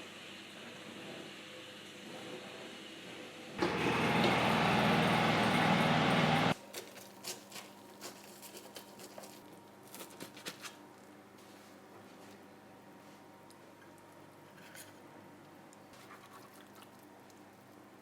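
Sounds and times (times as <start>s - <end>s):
small electric motor running: 3.6s - 6.6s.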